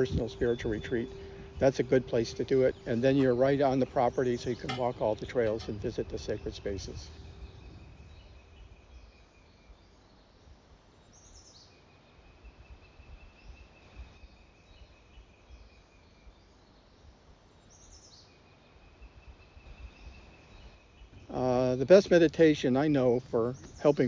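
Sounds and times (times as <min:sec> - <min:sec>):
high bird trill: 0:00.0 - 0:08.6.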